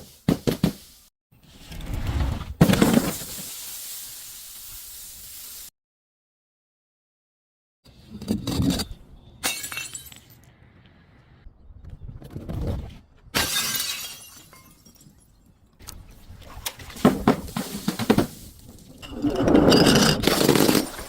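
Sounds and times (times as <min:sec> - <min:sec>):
glass bottles smashing: 0:09.4 - 0:10.4, 0:13.4 - 0:15.5, 0:17.1 - 0:21.0.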